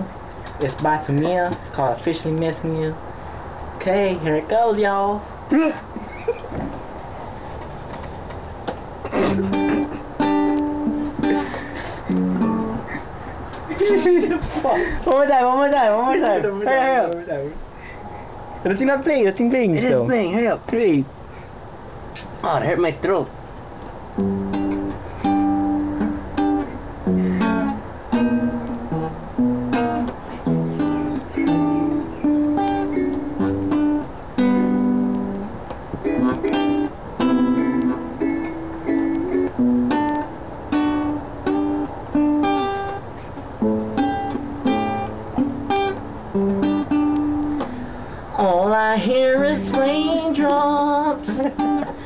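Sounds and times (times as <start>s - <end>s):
guitar plucked notes and chords: 9.1s - 13.0s, 24.1s - 48.2s, 49.2s - 52.0s.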